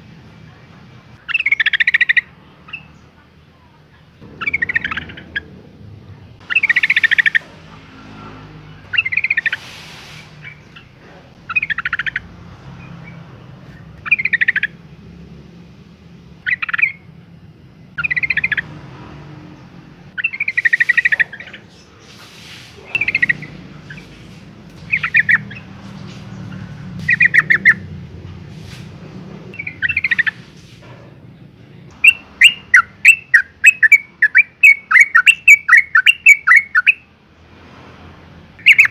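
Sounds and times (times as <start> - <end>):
bulbul bubbly calls: 1.2 - 2.9, 4.3 - 5.6, 6.4 - 7.4, 8.9 - 9.7, 10.4 - 12.3, 14.0 - 14.8, 16.4 - 17.1, 18.0 - 18.6, 20.2 - 21.9, 22.8 - 24.1, 24.8 - 25.7, 27.1 - 27.8, 29.6 - 30.4, 32.0 - 37.0
bird chattering notes: 1.2 - 3.0, 4.2 - 7.6, 8.9 - 14.9, 16.4 - 17.1, 18.0 - 18.8, 20.1 - 27.9, 29.6 - 30.5, 31.9 - 37.0, 38.6 - 38.9.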